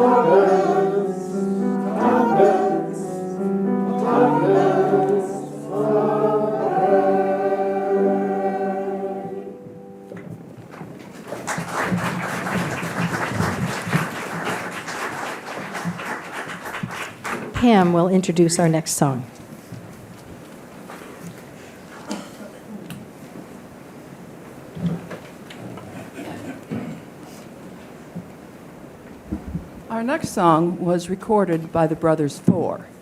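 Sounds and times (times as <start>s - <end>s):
choir singing: 0.0s - 10.1s
audience applause: 11.0s - 17.6s.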